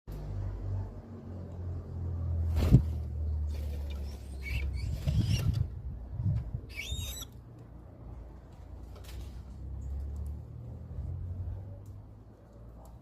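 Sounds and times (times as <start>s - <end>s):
small bird squeaky calls: 4.0s - 5.7s, 6.7s - 7.4s.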